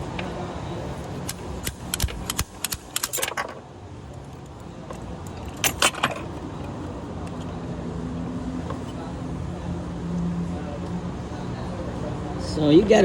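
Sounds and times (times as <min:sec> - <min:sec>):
metal tools clinking: 0:01.2 - 0:07.6.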